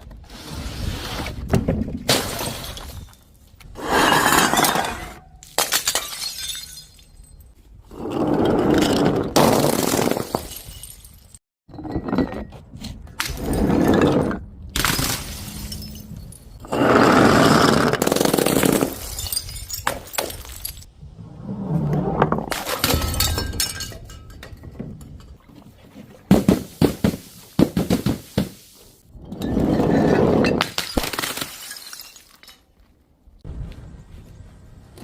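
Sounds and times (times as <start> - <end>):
glass bottles shattering: 2.1 - 3.4, 4.0 - 7.6, 9.5 - 12.3, 13.3 - 16.6, 18.2 - 20.9, 22.5 - 25.4, 29.3 - 32.7.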